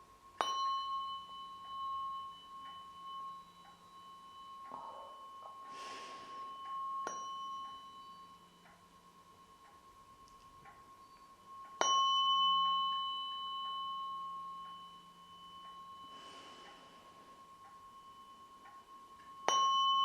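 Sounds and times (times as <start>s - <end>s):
tuning fork ringing: 0.0s - 20.0s
soft breathy noise: 4.6s - 7.0s, 15.7s - 18.4s.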